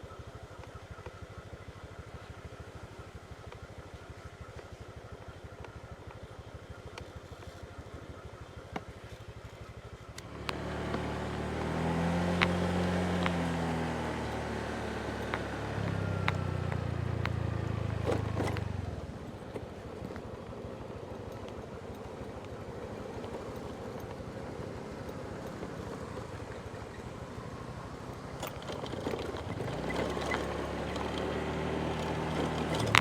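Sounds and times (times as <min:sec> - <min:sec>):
motorbike engine idling and revving: 0:00.0 - 0:33.0.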